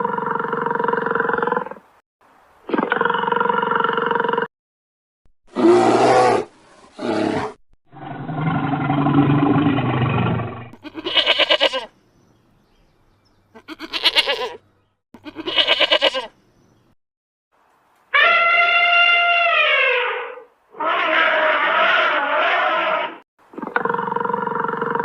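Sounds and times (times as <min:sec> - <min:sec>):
animal calls: 0:18.1 - 0:25.0.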